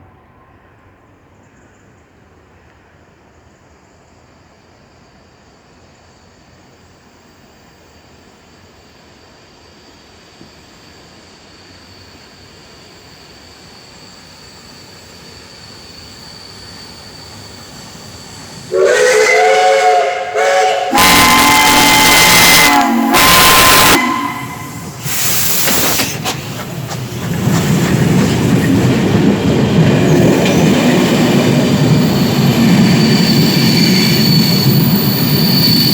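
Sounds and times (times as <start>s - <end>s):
train passing with rumble: 0.0s - 35.9s
train horn: 18.7s - 24.9s.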